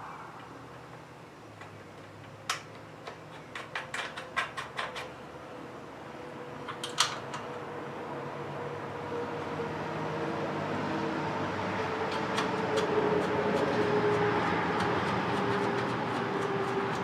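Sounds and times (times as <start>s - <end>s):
hand tools clicking and tapping: 1.6s - 5.1s, 12.0s - 17.0s.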